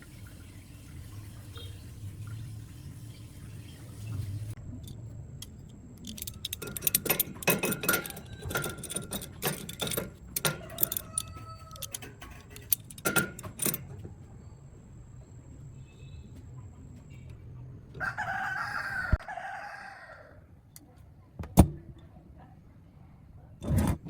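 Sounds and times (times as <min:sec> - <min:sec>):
small metal objects clinking: 0:04.8 - 0:14.0.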